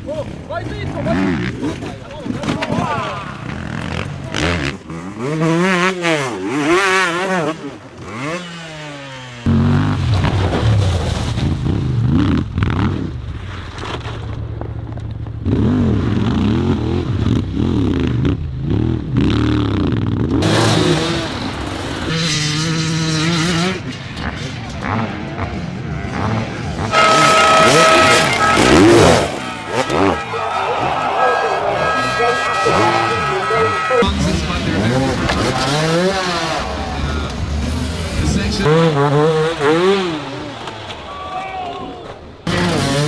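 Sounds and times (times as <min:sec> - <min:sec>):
dirt bike engines revving: 0:00.0 - 0:10.1, 0:14.4 - 0:43.0.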